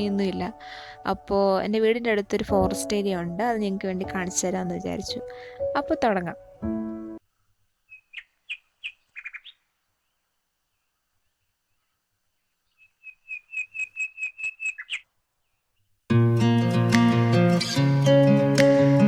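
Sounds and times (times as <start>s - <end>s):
bird chirping: 7.9s - 10.2s, 12.6s - 15.6s.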